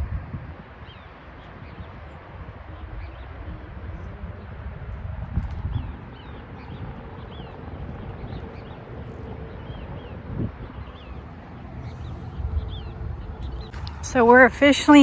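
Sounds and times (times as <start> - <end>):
wind rumble on microphone: 0.0 - 15.0
small birds chirping: 5.7 - 15.0.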